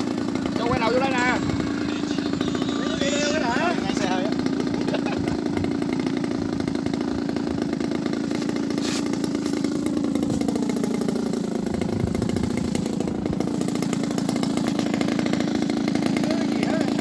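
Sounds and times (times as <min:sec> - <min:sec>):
small gasoline engine running: 0:00.0 - 0:17.0.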